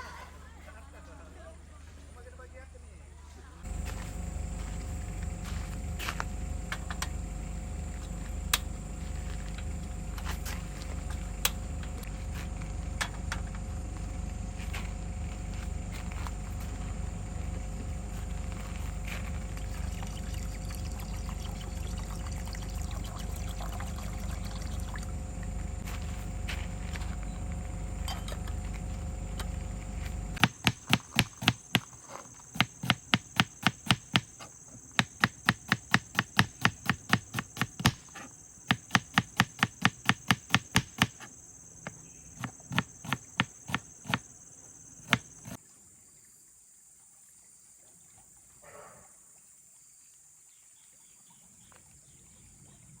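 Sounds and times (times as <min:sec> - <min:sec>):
high insect drone: 0:03.6 - 0:47.8
rapid sharp knocks: 0:30.4 - 0:34.4, 0:35.0 - 0:38.1, 0:38.7 - 0:41.3, 0:42.4 - 0:44.2.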